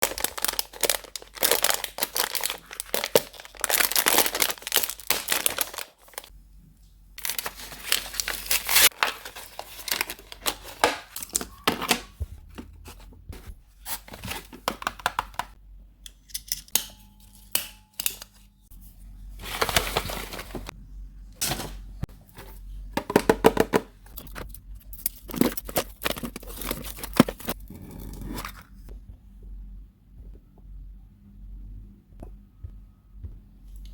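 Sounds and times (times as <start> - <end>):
packaging torn and crinkled: 0.0 - 6.3, 7.2 - 11.5, 24.2 - 27.6.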